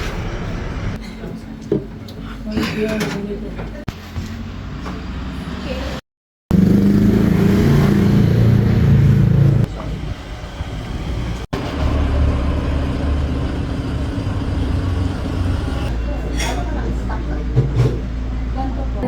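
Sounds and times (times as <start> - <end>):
vehicle engine running: 6.5 - 16.0.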